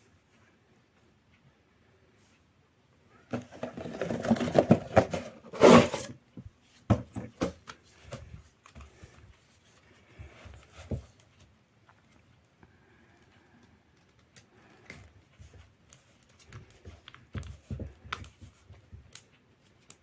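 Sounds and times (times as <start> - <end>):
clicks and knocks of handled items: 3.3 - 9.3.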